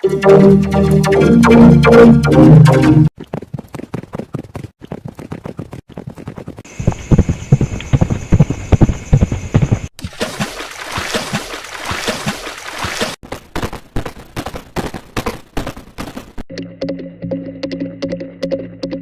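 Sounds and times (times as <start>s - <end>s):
music: 0.0s - 3.1s, 16.5s - 19.0s
horse hoofbeats: 3.2s - 9.9s, 11.0s - 16.4s.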